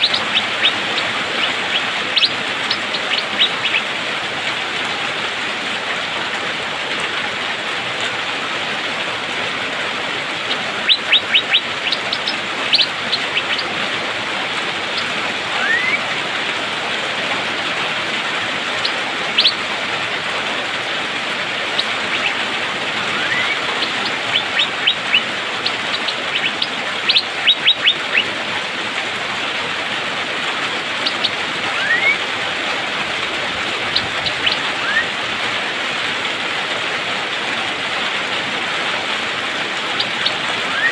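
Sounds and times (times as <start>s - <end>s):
bird chirping and whistling: 0.0s - 3.9s, 10.8s - 13.7s, 14.9s - 16.0s, 18.8s - 19.6s, 21.8s - 22.4s, 23.1s - 28.3s, 31.0s - 32.2s, 33.9s - 35.1s, 40.0s - 40.9s
rain rushing: 0.0s - 40.9s.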